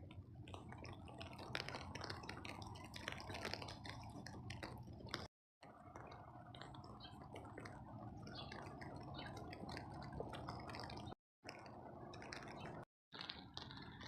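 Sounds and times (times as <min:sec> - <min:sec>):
raindrops ticking on microphone: 0:00.0 - 0:14.0
steady rain: 0:01.1 - 0:05.2.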